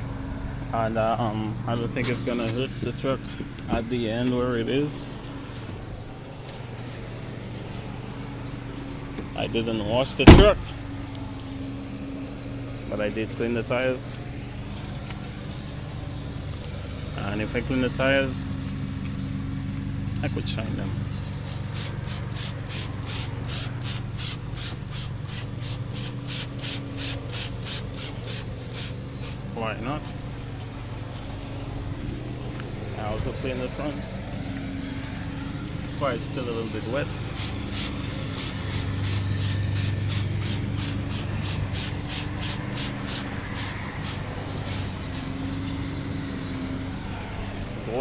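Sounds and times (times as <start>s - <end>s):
applicator rubbing a tire: 21.4s - 29.5s, 37.3s - 45.4s
trigger spray bottle squirting: 21.4s - 29.5s, 37.3s - 45.3s.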